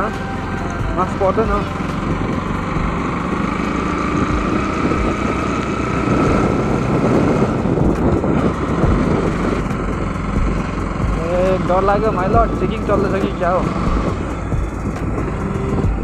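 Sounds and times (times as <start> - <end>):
motorcycle engine and road noise: 0.0 - 16.0
wind rushing over microphone: 0.0 - 16.0.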